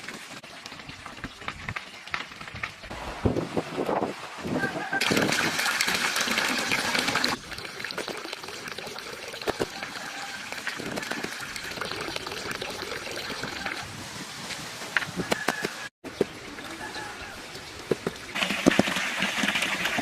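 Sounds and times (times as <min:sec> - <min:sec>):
running splashing water: 0:03.0 - 0:13.8, 0:18.1 - 0:20.0.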